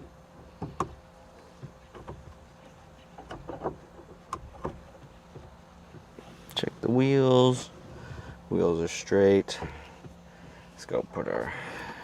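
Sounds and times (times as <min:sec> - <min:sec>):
light clicks and knocks: 0:00.0 - 0:06.7, 0:09.4 - 0:12.0.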